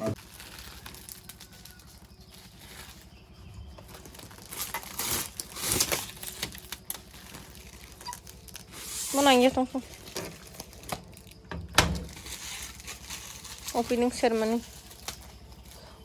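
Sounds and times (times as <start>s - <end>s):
rustling and crinkling handling: 0.0s - 16.0s.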